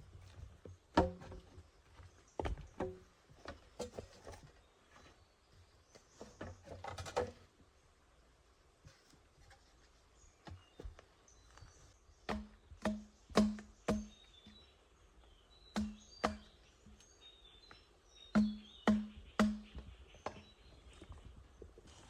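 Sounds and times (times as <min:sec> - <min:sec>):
chopping strikes on wood: 0:01.0 - 0:01.4, 0:12.3 - 0:14.2, 0:15.8 - 0:16.6, 0:18.4 - 0:19.9.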